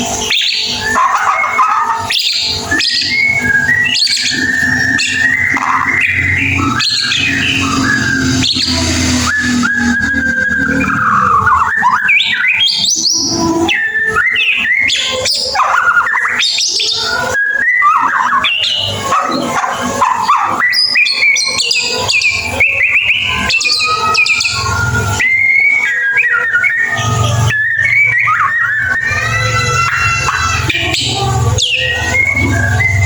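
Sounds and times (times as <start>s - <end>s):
songbird whistling and trilling: 0.0s - 33.0s.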